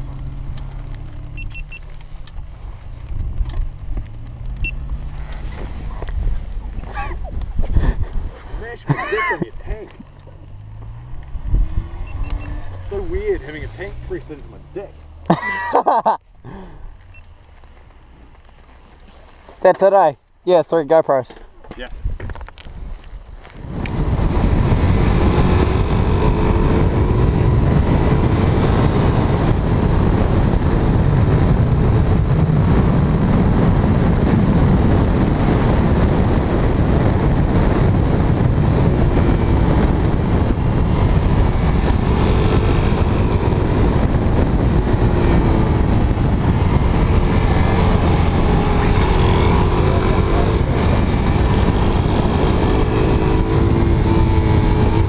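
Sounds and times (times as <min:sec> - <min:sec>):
motorcycle engine running: 0:00.0 - 0:19.4, 0:21.6 - 0:55.0
wind rushing: 0:10.7 - 0:14.1, 0:23.6 - 0:55.0.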